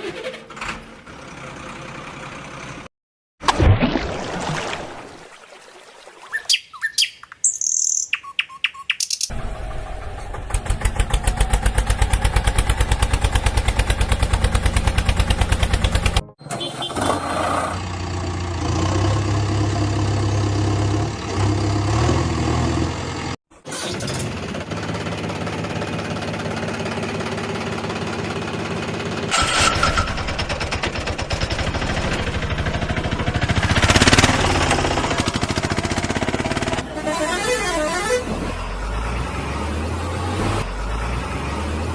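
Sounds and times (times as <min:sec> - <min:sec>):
clicks and chirps: 0:06.3 - 0:09.3
vehicle engine running: 0:09.2 - 0:16.4, 0:24.2 - 0:40.0.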